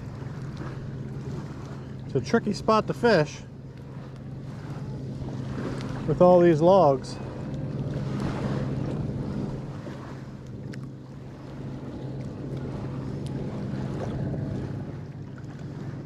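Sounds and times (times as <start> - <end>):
boat motor humming: 0.0 - 16.0
water washing: 0.0 - 16.0
wind on microphone: 7.0 - 16.0.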